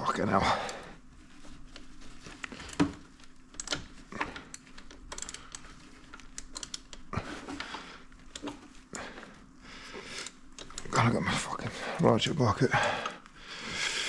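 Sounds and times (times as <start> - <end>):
faint steady hum: 0.0 - 14.0
hand tools and metal parts clicking: 2.4 - 8.7, 10.1 - 11.1.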